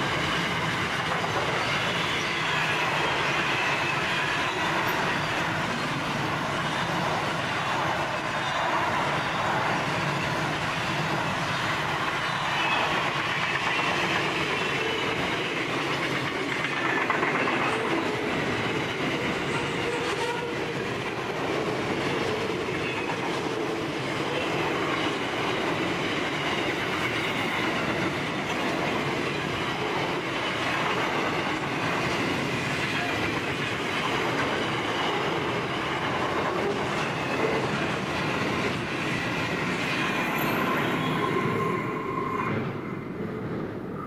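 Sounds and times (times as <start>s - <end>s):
wheels clacking over track: 11.0s - 40.8s
wheel squeal: 39.9s - 42.6s.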